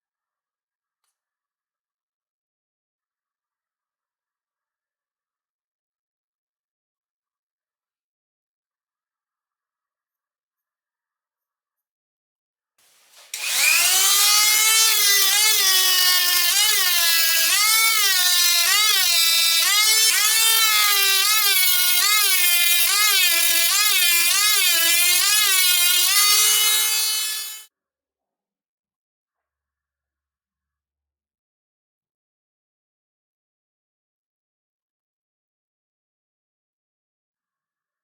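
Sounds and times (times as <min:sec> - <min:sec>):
motor armature whining at high speed: 0:13.3 - 0:27.7.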